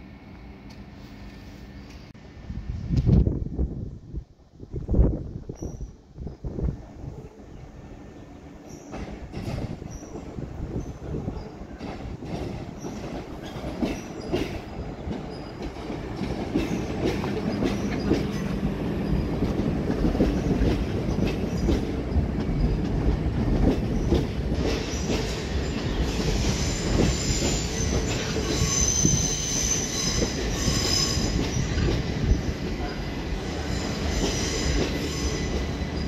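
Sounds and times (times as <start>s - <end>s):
train wheels clicking over rail joints: 8.8s - 10.4s, 11.4s - 36.0s
high-pitched wheel squeal: 26.1s - 31.7s.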